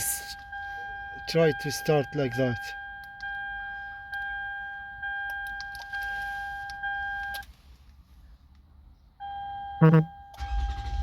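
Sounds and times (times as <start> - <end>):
electronic warning beeps: 9.2 - 10.7.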